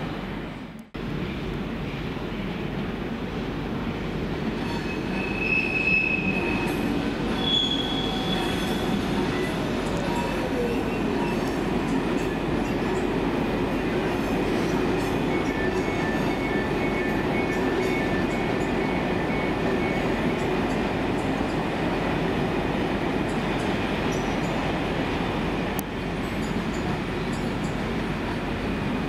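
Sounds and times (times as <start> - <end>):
train rumble: 0.0 - 29.0
high-pitched wheel squeals: 4.6 - 11.6.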